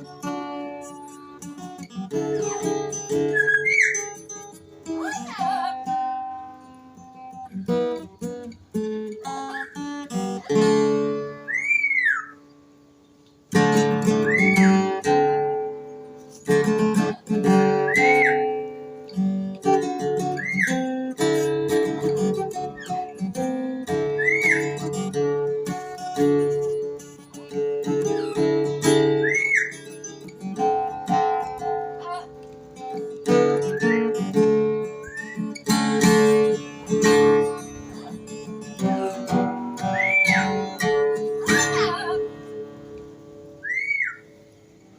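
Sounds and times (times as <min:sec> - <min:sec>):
acoustic guitar music: 0:00.0 - 0:44.9
rising and falling whistle: 0:11.5 - 0:12.4, 0:14.2 - 0:14.8, 0:24.2 - 0:24.7, 0:29.2 - 0:29.8, 0:39.9 - 0:40.5, 0:43.6 - 0:44.2.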